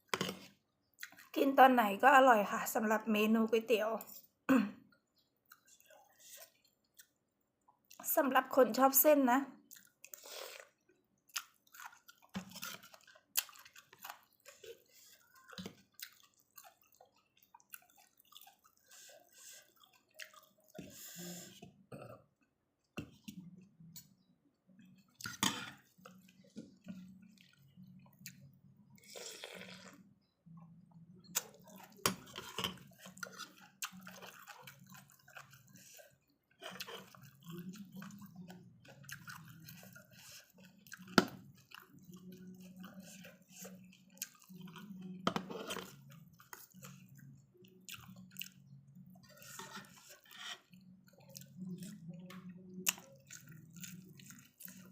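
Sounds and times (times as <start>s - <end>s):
chewing noodles: 0.0s - 1.6s, 4.9s - 8.1s, 9.6s - 54.9s
slurping soup: 10.1s - 10.8s, 11.5s - 21.8s, 25.2s - 27.7s, 28.3s - 30.0s, 31.2s - 42.0s, 42.6s - 47.2s, 48.6s - 52.0s.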